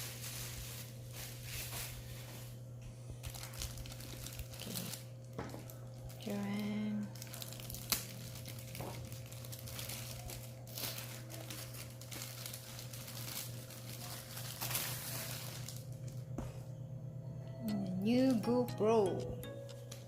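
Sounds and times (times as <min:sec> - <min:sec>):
plastic packaging crinkling: 0:00.0 - 0:02.6, 0:03.2 - 0:16.3.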